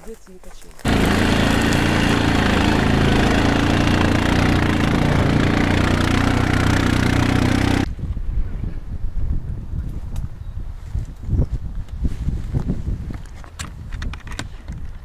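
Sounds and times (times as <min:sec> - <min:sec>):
engine humming: 0:00.8 - 0:07.9.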